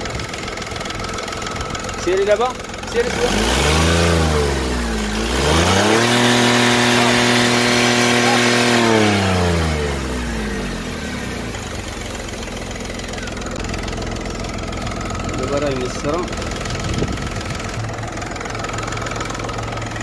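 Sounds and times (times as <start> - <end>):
diesel engine revving and idling: 0.0 - 20.0.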